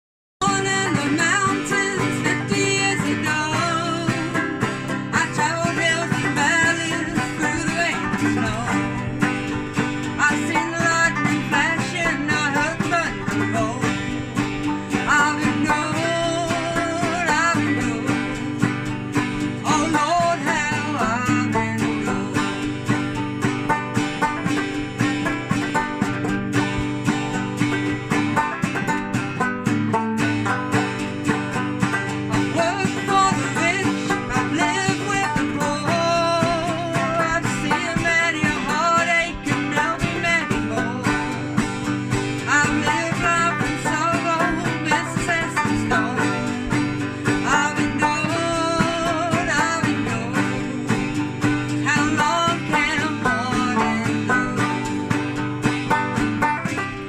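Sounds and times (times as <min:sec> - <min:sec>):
acoustic string band playing: 0:00.5 - 0:57.0.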